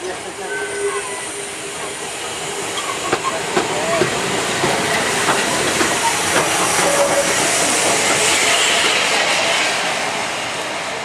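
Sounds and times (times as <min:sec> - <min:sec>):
steam hissing: 0:00.0 - 0:11.0
wheels clanking on rail joints: 0:02.7 - 0:09.0.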